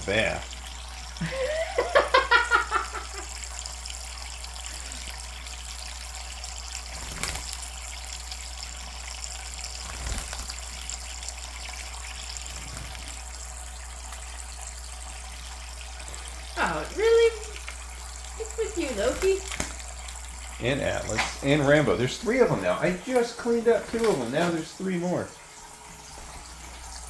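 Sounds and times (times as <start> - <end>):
faucet water running: 0.0 - 27.0.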